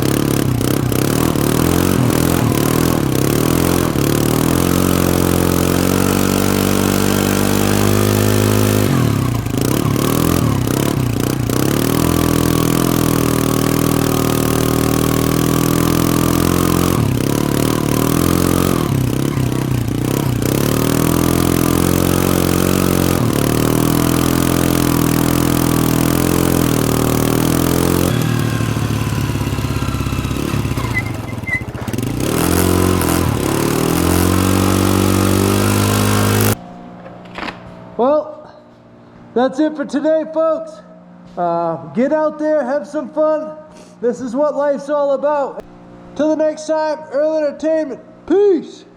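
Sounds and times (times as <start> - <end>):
atv engine revving: 0.0 - 36.6.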